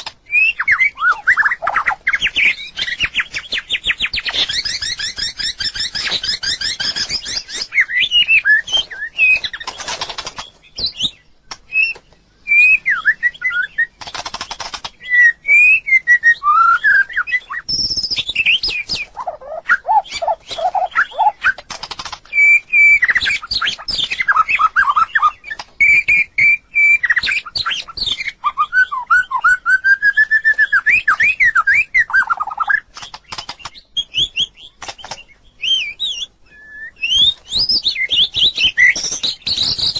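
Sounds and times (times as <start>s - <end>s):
bird singing whistled phrases: 0.3s - 9.6s, 10.8s - 13.9s, 15.0s - 21.6s, 22.3s - 32.8s, 35.6s - 39.9s
harsh rasping bird rattles: 9.4s - 10.6s, 14.0s - 15.0s, 20.2s - 22.3s.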